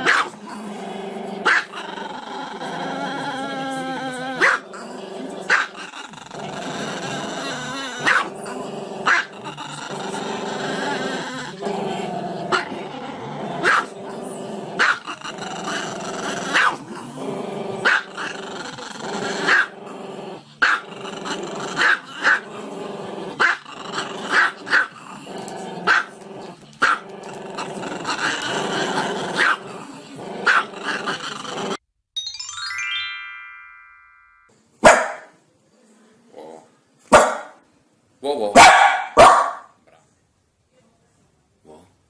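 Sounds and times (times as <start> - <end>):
dog growling low: 0.4 - 31.8
small dog barking sharply: 34.8 - 35.3, 37.1 - 37.6, 38.6 - 39.7.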